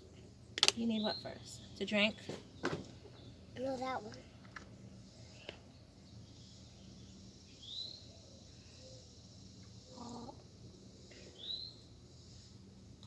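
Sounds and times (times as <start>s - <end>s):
faint hum: 0.0s - 13.0s
bird calling: 9.8s - 10.5s.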